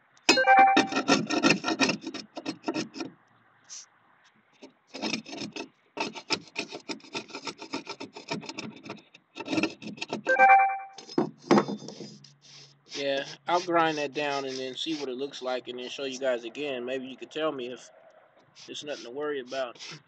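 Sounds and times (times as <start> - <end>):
scraping on boat hull: 0.7 - 3.2, 4.6 - 10.3, 11.0 - 15.2.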